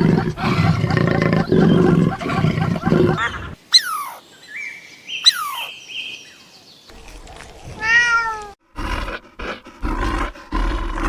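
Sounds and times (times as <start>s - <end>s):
rough rasping animal calls: 0.0s - 4.2s
cat meowing: 7.8s - 8.6s.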